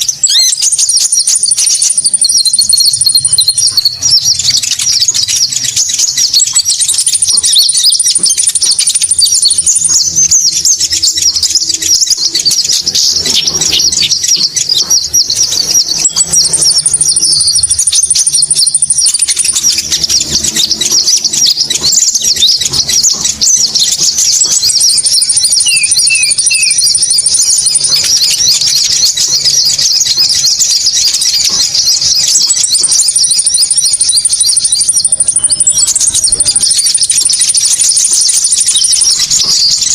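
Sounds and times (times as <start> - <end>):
high-pitched bird chattering: 0.0 - 39.9
thin high bird trill: 0.0 - 39.9.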